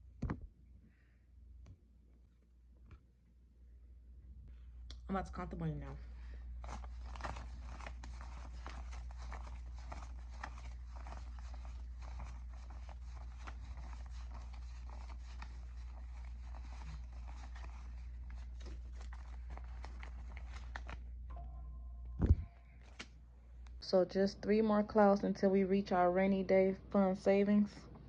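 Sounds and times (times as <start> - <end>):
banknotes rustling and clicking: 6.2 - 21.2, 22.8 - 23.2
low hum: 16.5 - 27.1.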